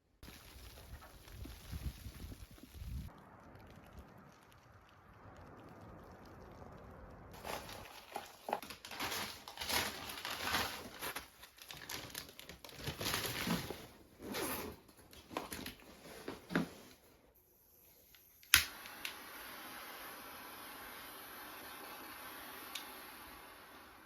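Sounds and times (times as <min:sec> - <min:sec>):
crinkling and rustling: 0:07.3 - 0:17.2.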